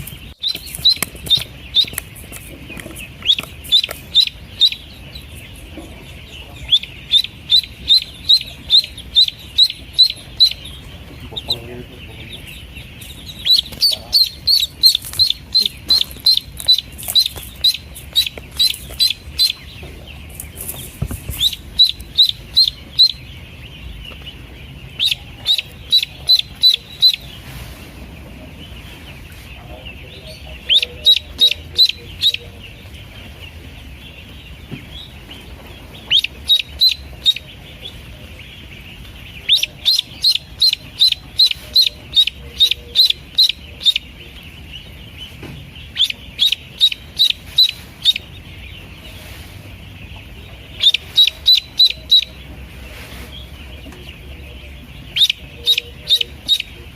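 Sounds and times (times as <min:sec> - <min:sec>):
chorus of faint peeps: 0:00.0 - 0:56.9
loud high duckling peeps: 0:00.0 - 0:56.9.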